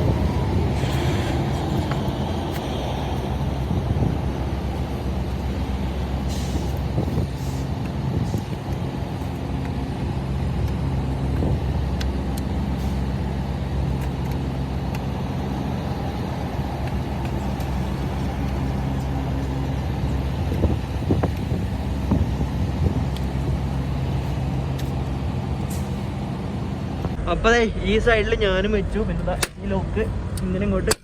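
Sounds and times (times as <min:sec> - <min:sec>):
heavy diesel engine idling: 0:00.0 - 0:29.3
short air hisses: 0:06.3 - 0:07.7.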